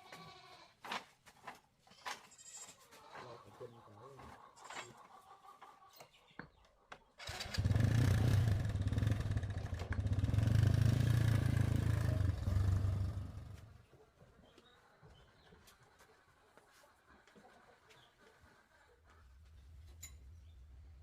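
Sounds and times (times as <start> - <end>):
motorbike engine running: 7.4 - 13.7.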